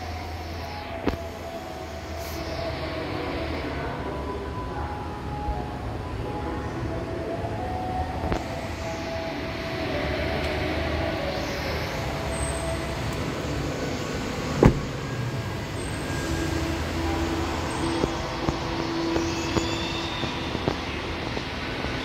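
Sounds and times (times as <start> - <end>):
indoor background noise: 0.0 - 22.0
car door shut: 14.5 - 15.0.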